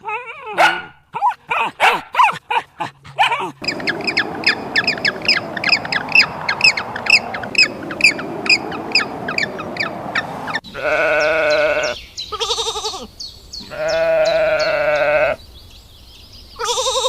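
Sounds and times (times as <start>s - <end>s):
sheep bleating: 10.6s - 15.4s, 16.6s - 17.0s.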